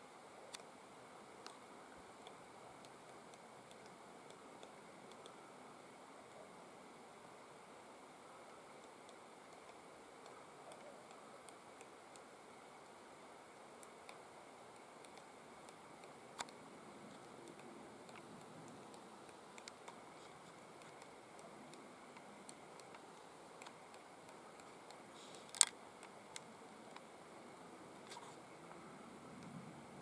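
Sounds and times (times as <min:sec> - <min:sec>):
faint steady hiss: 0:00.0 - 0:30.0.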